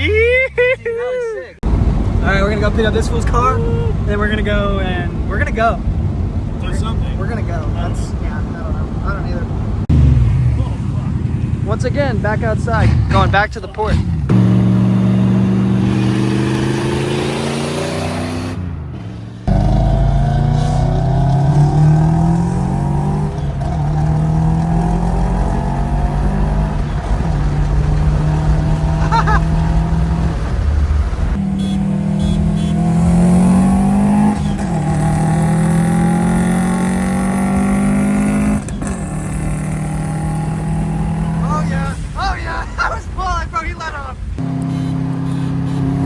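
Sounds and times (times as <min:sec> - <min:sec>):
car engine revving through gears: 0:04.0 - 0:11.9, 0:12.6 - 0:42.2, 0:44.4 - 0:46.0.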